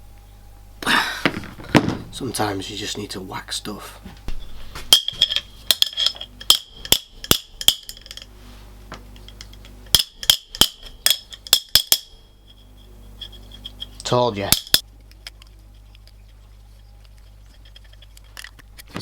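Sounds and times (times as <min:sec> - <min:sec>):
hammer striking metal wrench: 0:04.9 - 0:08.2, 0:09.9 - 0:12.2, 0:13.2 - 0:14.8.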